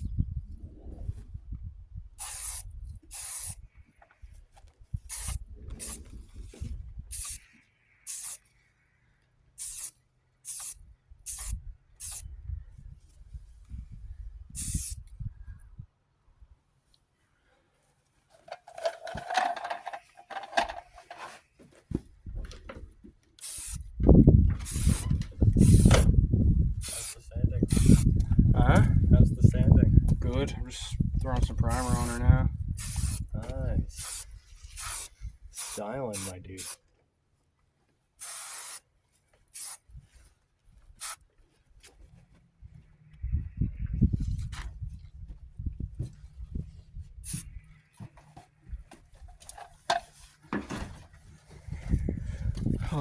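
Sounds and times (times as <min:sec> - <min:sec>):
aerosol spray can hissing: 0:02.2 - 0:03.6, 0:05.1 - 0:06.0, 0:07.1 - 0:07.4, 0:08.1 - 0:08.4, 0:09.6 - 0:09.9, 0:10.5 - 0:12.2, 0:14.6 - 0:15.0, 0:23.4 - 0:23.8, 0:24.7 - 0:26.1, 0:26.8 - 0:28.1, 0:32.8 - 0:33.3, 0:34.0 - 0:36.8, 0:38.2 - 0:38.8, 0:39.6 - 0:39.8, 0:41.0 - 0:41.2
handling sounds: 0:18.1 - 0:23.4.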